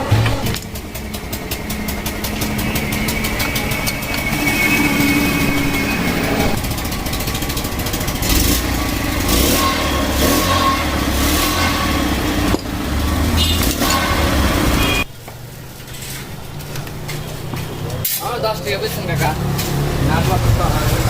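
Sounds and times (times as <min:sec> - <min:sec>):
fast mechanical rattle: 0:00.0 - 0:09.4
motorcycle engine revving: 0:00.0 - 0:15.1, 0:15.7 - 0:21.0.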